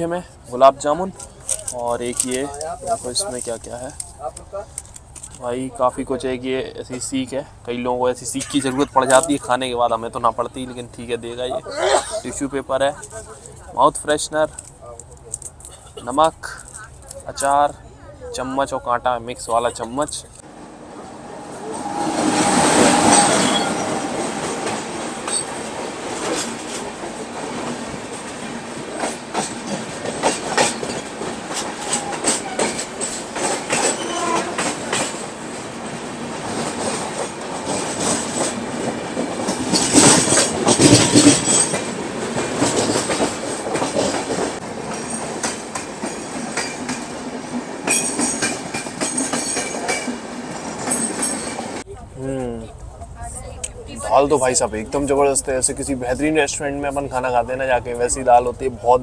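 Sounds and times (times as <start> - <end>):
train wheels clattering over rail joints: 22.2 - 51.8.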